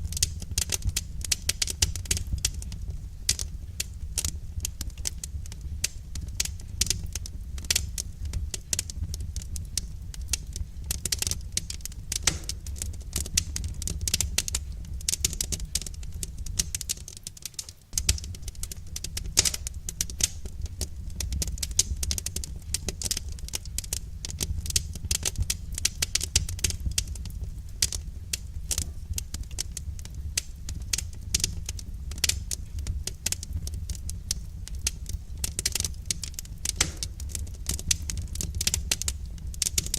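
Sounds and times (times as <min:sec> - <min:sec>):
firewood crackling and popping: 0:00.0 - 0:39.9
low rumble of flames: 0:00.0 - 0:39.9.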